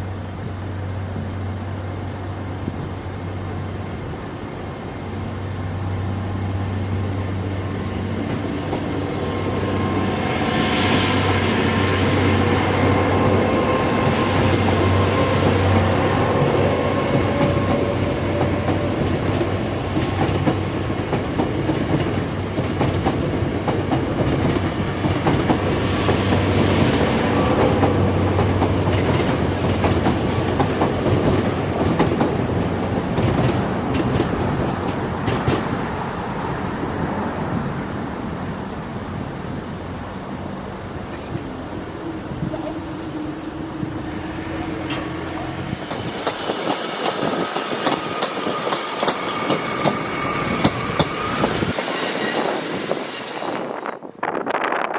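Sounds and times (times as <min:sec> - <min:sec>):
train wheels clattering over rails: 0:05.6 - 0:37.7, 0:42.4 - 0:53.9.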